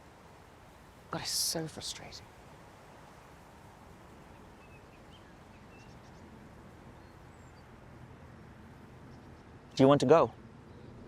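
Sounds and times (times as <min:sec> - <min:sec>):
low rumble and hiss: 0:00.0 - 0:11.0
faint bird chirps: 0:04.2 - 0:09.9, 0:10.6 - 0:11.0.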